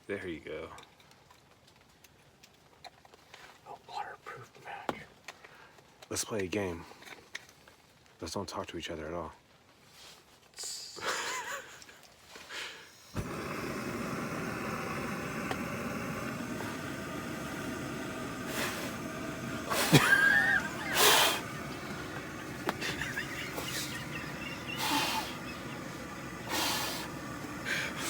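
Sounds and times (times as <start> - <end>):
gas burner hissing: 10.6 - 11.7, 12.4 - 28.0.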